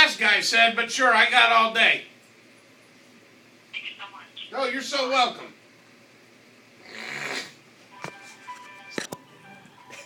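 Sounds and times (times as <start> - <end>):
electronic hold music over phone: 7.9 - 10.0.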